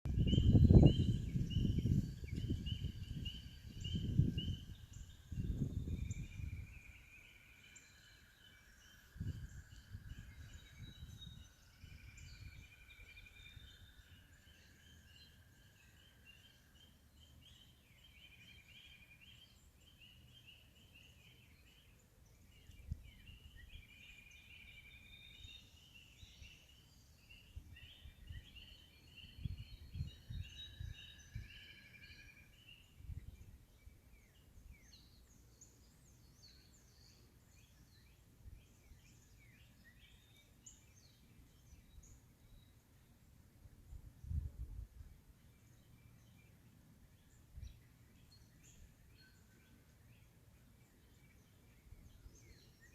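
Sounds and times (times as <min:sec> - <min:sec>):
low rumbles on microphone: 0:00.1 - 0:06.8.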